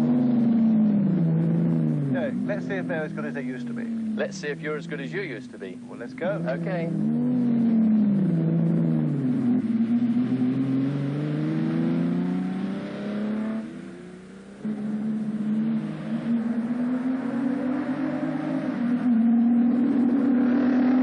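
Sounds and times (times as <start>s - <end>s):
sports car engine revving: 0.0s - 21.0s.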